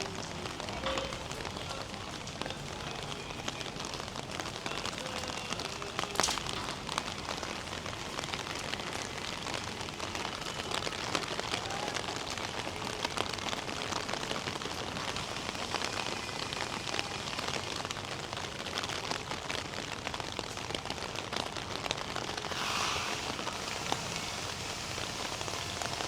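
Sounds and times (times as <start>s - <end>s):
rain on hard surfaces: 0.0s - 26.0s
dripping clicks: 6.1s - 7.1s.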